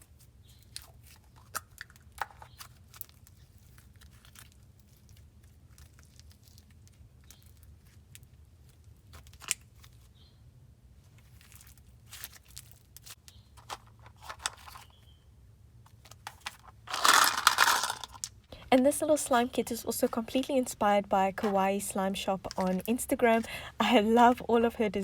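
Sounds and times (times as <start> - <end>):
soft clicks and crinkles: 0.5 - 10.1
low steady hum: 12.7 - 25.0.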